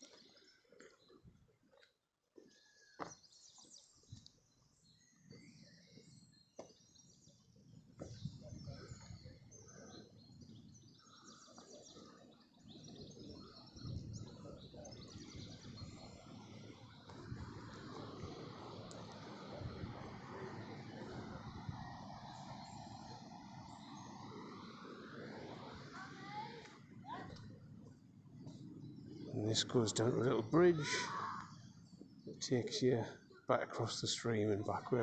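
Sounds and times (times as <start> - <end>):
songbirds chirping and singing: 2.4 - 26.0, 27.1 - 35.0
low rumbling noise: 13.7 - 31.8.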